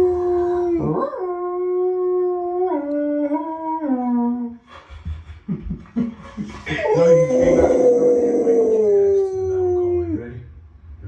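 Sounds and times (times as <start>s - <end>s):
dog howling: 6.7s - 10.2s
dog whining: 6.8s - 10.2s.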